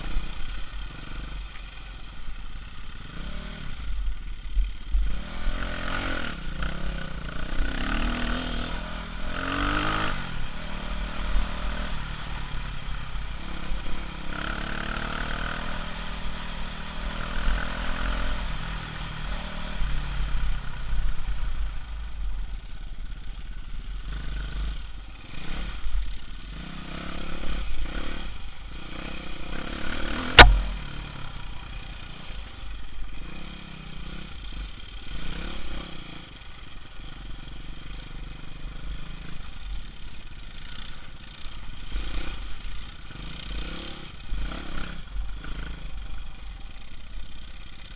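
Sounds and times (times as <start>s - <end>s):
off-road vehicle engine revving: 5.0s - 12.3s, 26.4s - 31.2s
sharp knock: 30.3s - 30.7s.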